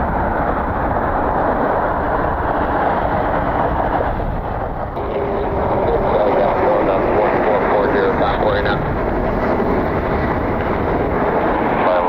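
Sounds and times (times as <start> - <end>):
wind buffeting the microphone: 0.0 - 12.0.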